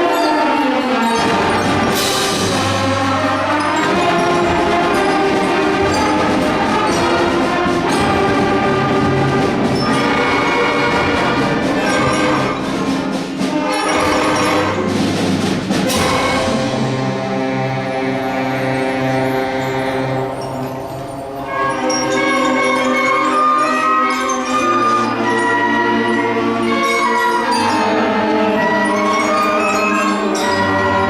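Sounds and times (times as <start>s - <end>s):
brass and percussion ensemble: 0.0s - 31.0s.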